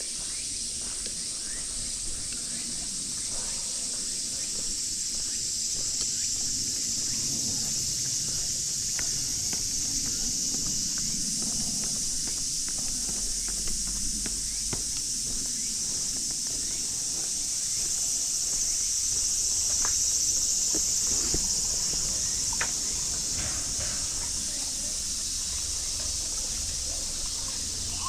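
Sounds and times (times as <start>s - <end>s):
cicadas chorus: 0.0s - 28.0s
footsteps on gravel: 7.6s - 22.4s.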